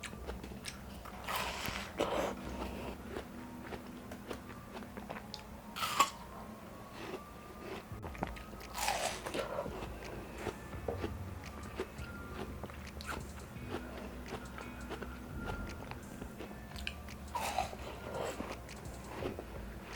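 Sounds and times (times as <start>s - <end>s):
crunching watermelon bites: 7.6s - 15.9s.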